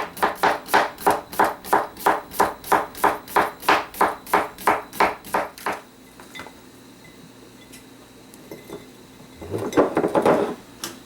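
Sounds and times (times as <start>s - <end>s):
knife chopping on cutting board: 0.0s - 5.8s.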